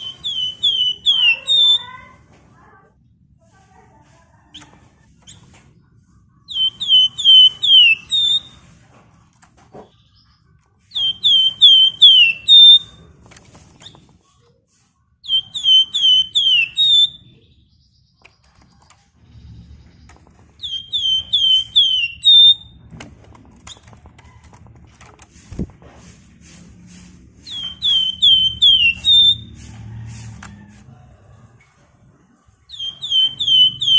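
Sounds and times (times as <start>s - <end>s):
songbird whistled phrase: 0.0s - 1.9s, 15.2s - 17.2s.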